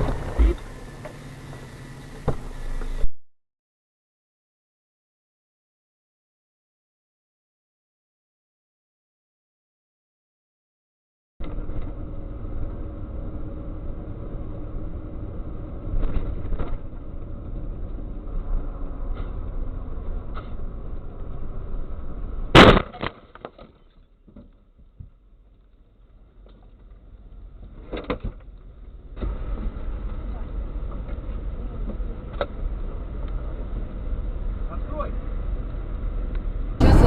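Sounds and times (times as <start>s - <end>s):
loud crash impact: 0.0s - 1.0s
car driving noise: 0.0s - 3.1s, 36.8s - 37.0s.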